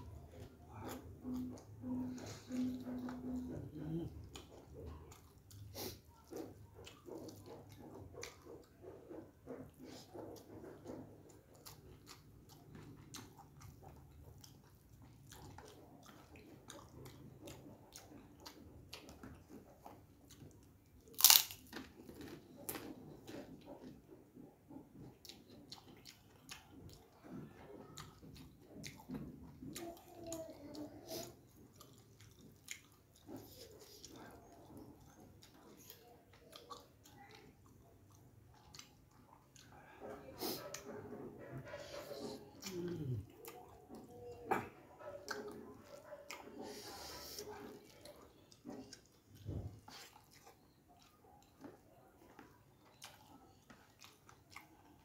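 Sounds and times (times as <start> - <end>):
chewing and lip smacks: 0.1 - 55.0
crackers crunching: 21.1 - 22.9.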